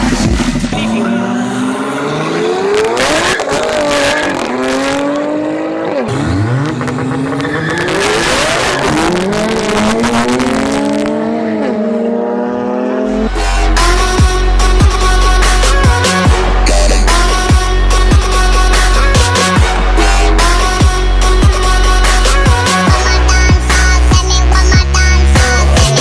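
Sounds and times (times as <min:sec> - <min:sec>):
car engine accelerating hard: 0:00.0 - 0:26.0.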